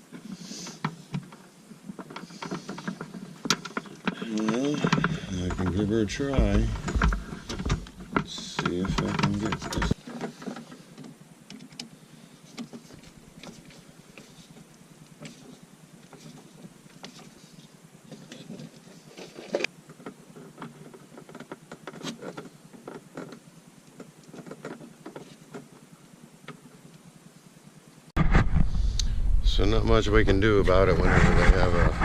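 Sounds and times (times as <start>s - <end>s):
tools clicking and knocking: 2.0s - 11.9s.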